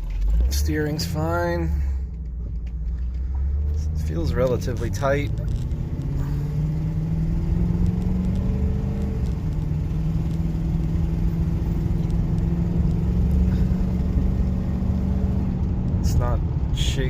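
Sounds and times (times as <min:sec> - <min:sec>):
road rumble: 0:00.0 - 0:17.0
truck engine running: 0:00.0 - 0:17.0.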